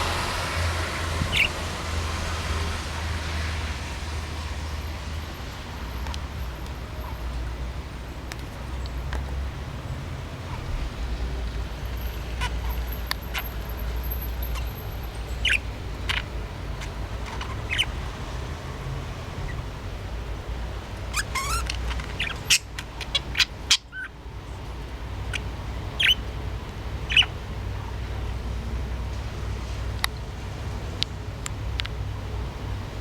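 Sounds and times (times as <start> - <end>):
budgerigar chirping: 1.2 - 1.6, 12.3 - 18.0, 21.1 - 24.2, 25.2 - 26.3, 27.0 - 27.4.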